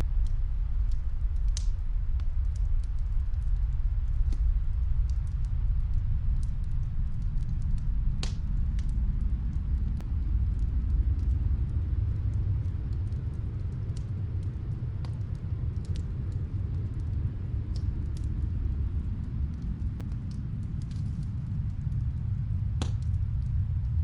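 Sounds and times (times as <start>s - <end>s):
fireplace fire crackling: 0.0s - 24.0s
snowstorm wind rumble: 0.0s - 24.0s.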